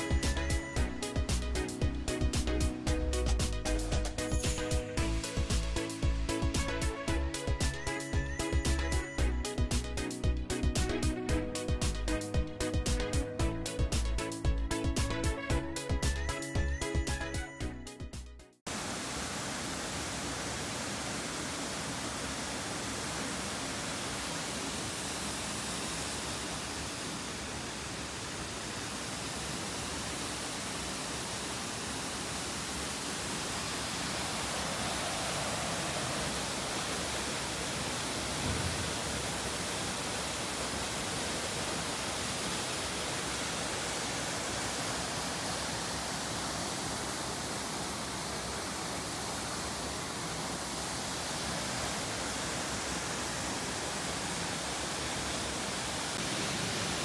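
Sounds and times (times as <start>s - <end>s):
low thump: 38.4s - 38.9s.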